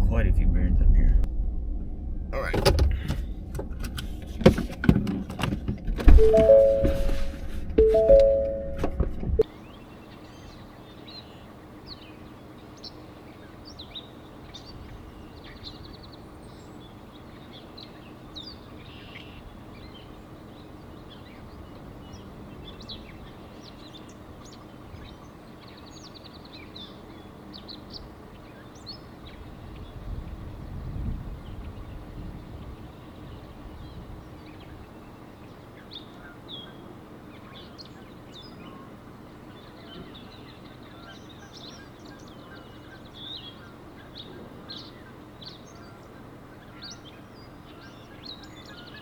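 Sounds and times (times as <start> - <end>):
low rumble: 0.0 - 4.5, 8.4 - 9.4
music: 6.2 - 9.1
songbirds chirping: 9.5 - 30.8, 31.4 - 49.0.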